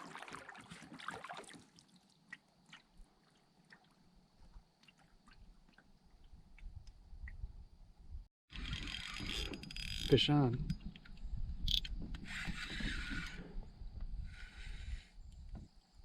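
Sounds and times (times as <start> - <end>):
water dripping and sloshing: 0.0 - 7.5.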